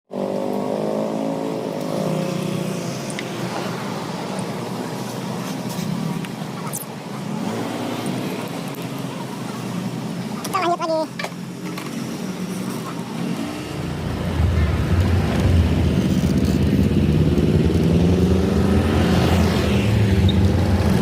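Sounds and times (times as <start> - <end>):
road and wind noise: 0.1 - 21.0
motorcycle engine running: 13.4 - 18.5.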